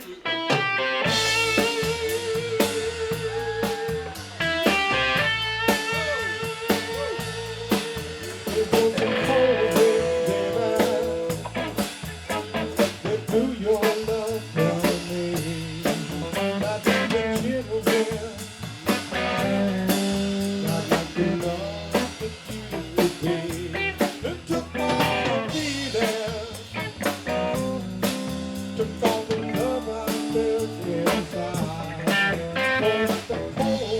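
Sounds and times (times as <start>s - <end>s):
drum kit steady beat: 0.0s - 33.9s
electric guitar bent notes: 4.4s - 12.8s.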